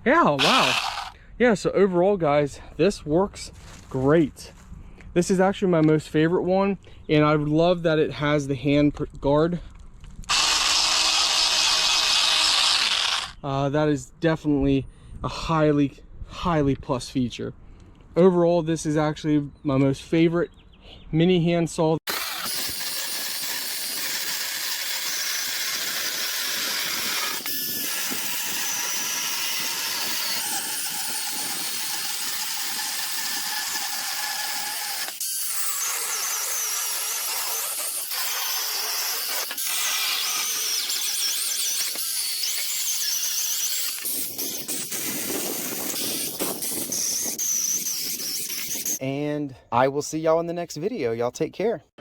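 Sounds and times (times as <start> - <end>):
mini chainsaw cutting wood: 0.4 - 1.2, 10.3 - 13.4, 22.1 - 49.0.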